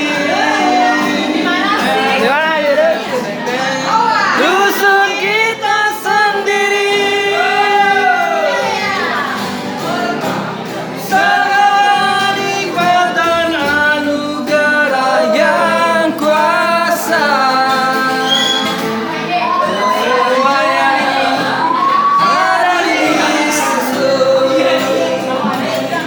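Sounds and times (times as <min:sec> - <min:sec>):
person singing: 0:00.0 - 0:09.1, 0:09.8 - 0:26.0
strummed guitar: 0:00.0 - 0:26.0.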